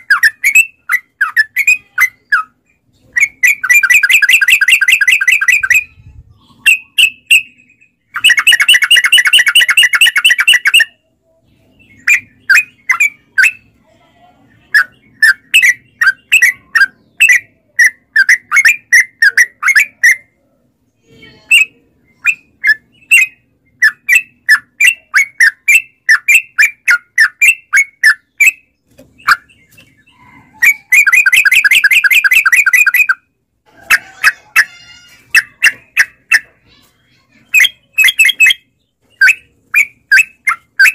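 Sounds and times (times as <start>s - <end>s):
bird rolling chatter: 21.5s - 40.9s
bird short chirping notes: 37.3s - 40.9s.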